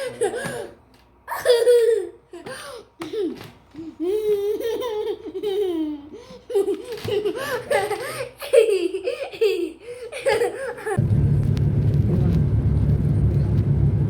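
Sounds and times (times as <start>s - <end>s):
baby laughing: 0.0s - 11.0s
low rumble: 11.0s - 14.0s.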